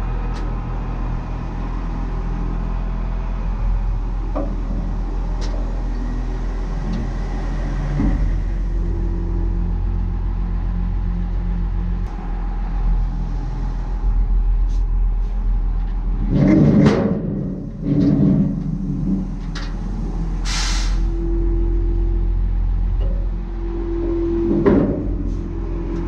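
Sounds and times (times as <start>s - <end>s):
diesel engine running: 0.0s - 26.0s
clunking and rattling: 15.7s - 20.4s, 22.7s - 26.0s
short hiss: 20.4s - 21.1s.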